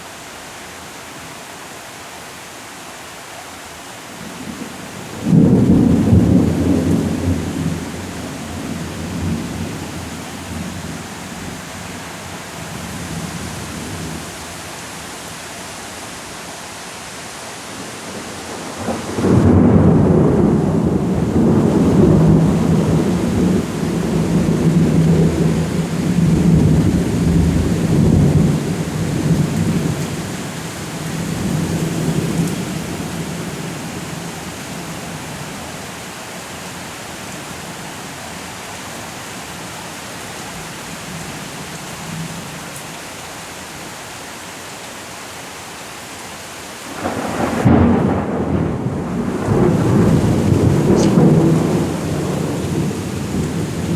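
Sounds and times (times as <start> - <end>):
steady rain: 0.0 - 53.9
thunder rumbling: 4.5 - 10.7, 18.1 - 30.4, 46.9 - 53.9.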